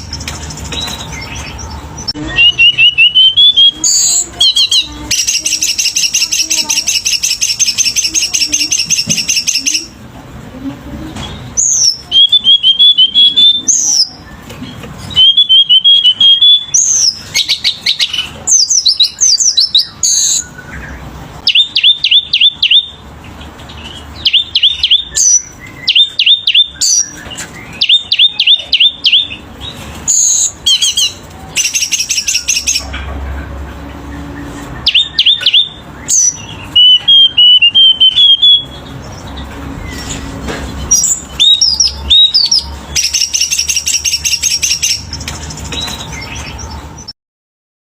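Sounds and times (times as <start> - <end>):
songbird singing: 0.0 - 47.2.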